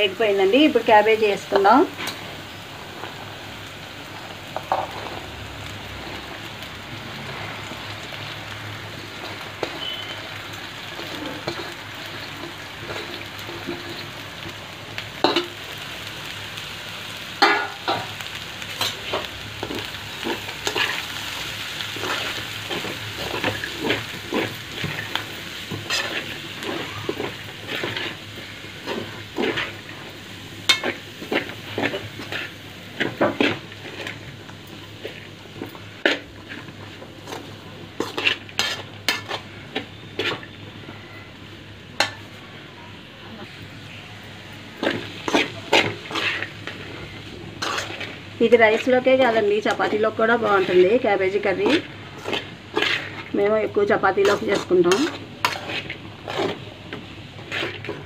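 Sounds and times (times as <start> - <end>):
cabbage sizzling in pan: 0.0 - 58.0
metal spoon scraping pan: 11.0 - 14.0, 18.8 - 28.2, 37.3 - 41.0, 44.8 - 56.7, 57.4 - 58.0.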